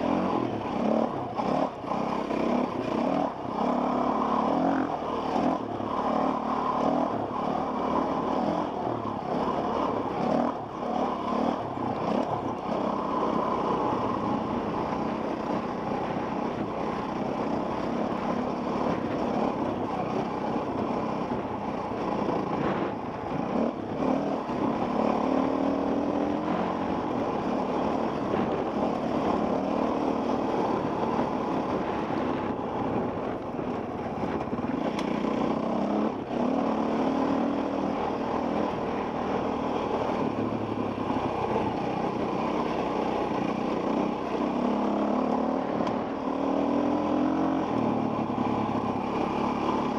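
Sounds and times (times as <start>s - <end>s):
dirt bike engine revving: 0.0s - 49.9s
wind noise: 18.8s - 25.0s, 25.9s - 29.8s, 30.6s - 36.5s.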